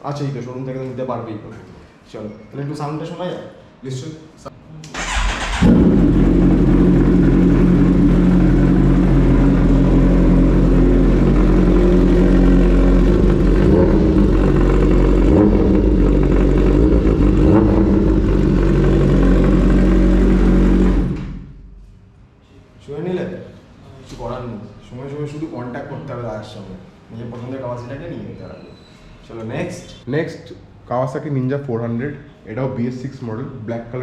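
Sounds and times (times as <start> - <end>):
motorcycle engine idling: 5.3 - 21.2.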